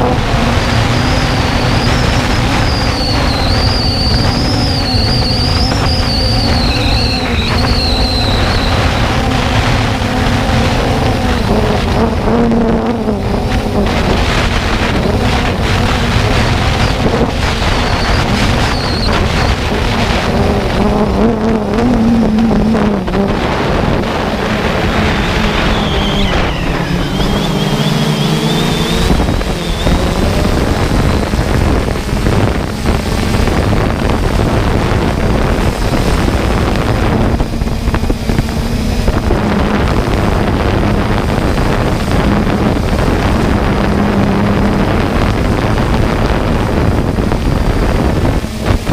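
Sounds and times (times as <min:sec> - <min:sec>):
drone propellers whining: 0:00.0 - 0:48.9
wind on microphone: 0:00.0 - 0:48.9.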